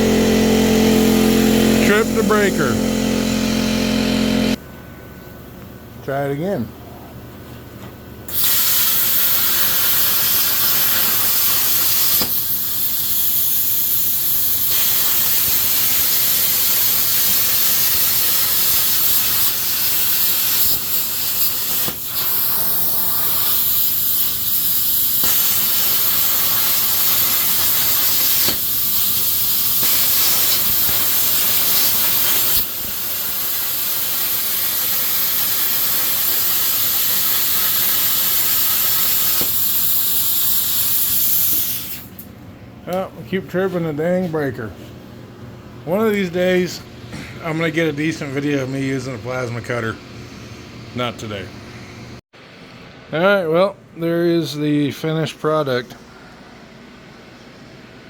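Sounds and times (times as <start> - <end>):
plasma cutter hissing: 8.3 - 42.2.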